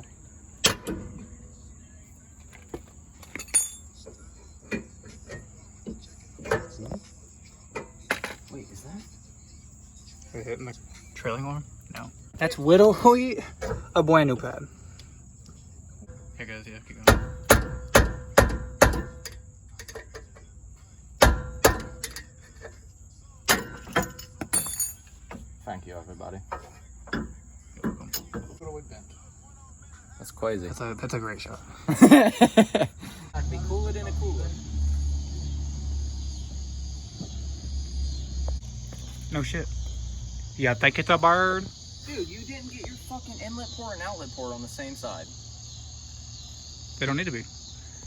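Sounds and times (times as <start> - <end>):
crickets trilling: 0.0 - 48.0
metal clinks and knocks: 2.5 - 7.1, 17.1 - 20.5, 21.2 - 22.8, 23.5 - 25.5.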